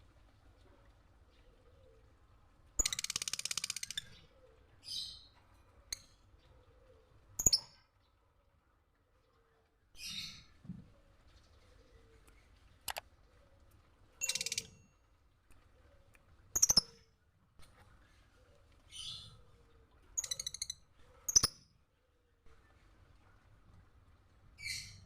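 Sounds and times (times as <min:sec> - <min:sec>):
bird chirps: 0:07.4 - 0:07.8, 0:14.2 - 0:14.9, 0:16.5 - 0:17.1, 0:20.2 - 0:21.6
sharp clicks: 0:12.9 - 0:13.1.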